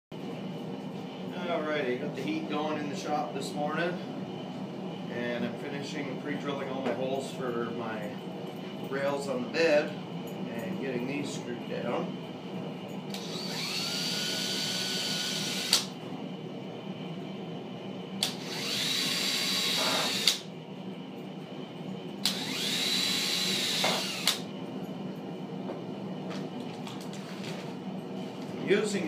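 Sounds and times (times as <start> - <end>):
power drill motor whine: 13.1 - 16.0, 18.2 - 20.5, 22.2 - 24.5.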